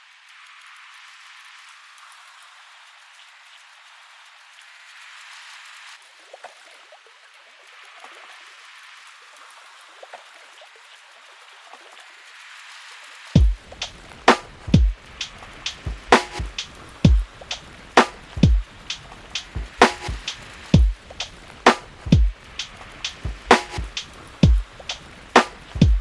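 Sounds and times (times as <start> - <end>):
rain hiss: 0.0 - 6.3, 7.2 - 26.0
lo-fi hip-hop beat: 13.4 - 26.0.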